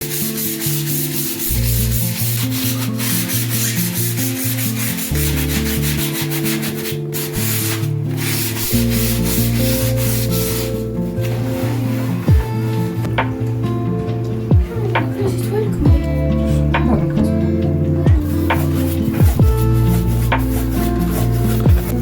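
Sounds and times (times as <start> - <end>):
sanding a table surface: 0.0 - 12.4, 18.2 - 22.0
background music: 0.0 - 22.0.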